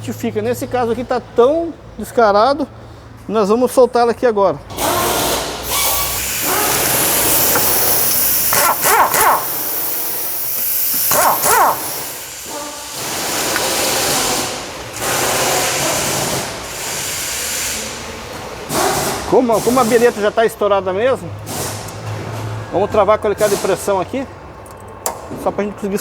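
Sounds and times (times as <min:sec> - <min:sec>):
pneumatic wrench bursts: 0:04.7 - 0:18.0, 0:18.7 - 0:20.3, 0:21.4 - 0:22.1.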